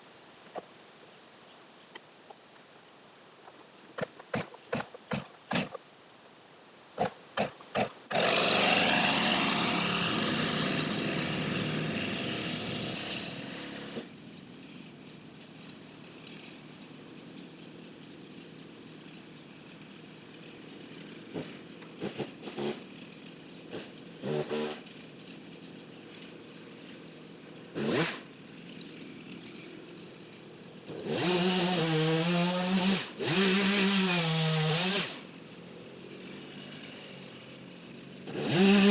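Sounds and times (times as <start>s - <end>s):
chainsaw revving: 7.0s - 14.1s, 15.5s - 38.9s.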